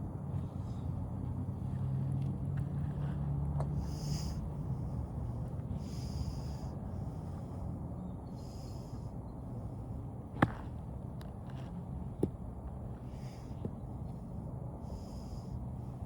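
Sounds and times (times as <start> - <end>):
golf club striking ball: 10.4 - 10.7.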